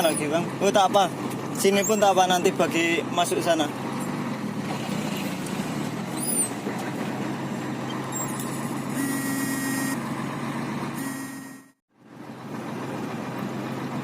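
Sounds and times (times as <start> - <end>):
diesel truck engine running: 0.0 - 14.0
steady buzzing tone: 9.0 - 10.0, 11.0 - 11.8.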